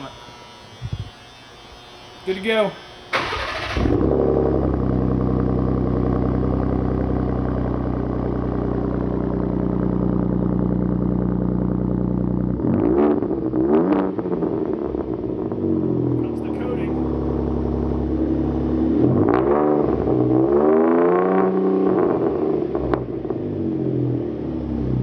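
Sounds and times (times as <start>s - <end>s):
engine revs blipped: 0.0s - 25.0s
engine idling: 1.0s - 12.6s
engine starter cranking: 2.6s - 4.1s.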